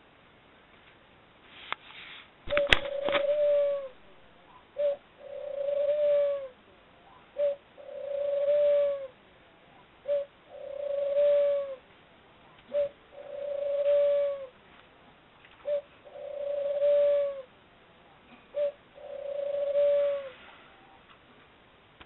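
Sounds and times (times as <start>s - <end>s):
lovebird cooing: 2.5s - 14.6s, 15.6s - 21.1s.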